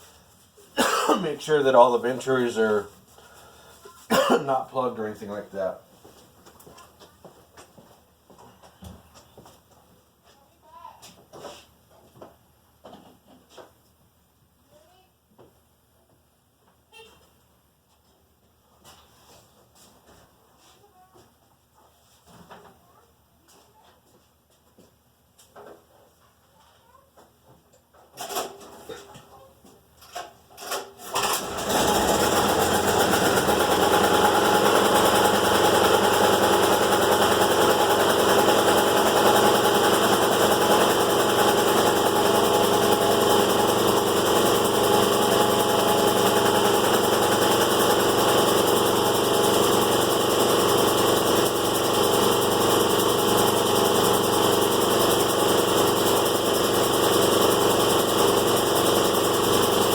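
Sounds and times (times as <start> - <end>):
air compressor running: 0.8 - 4.9, 31.0 - 59.9.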